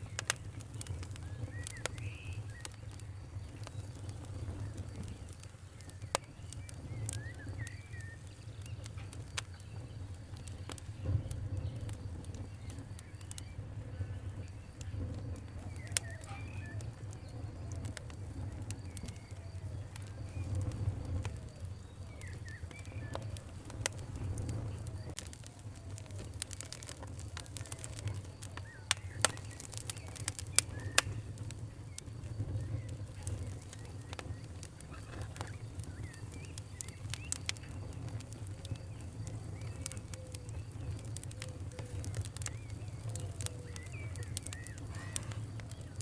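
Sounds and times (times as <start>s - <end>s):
faint birds calling: 0.0s - 46.0s
wood fire crackling: 0.0s - 46.0s.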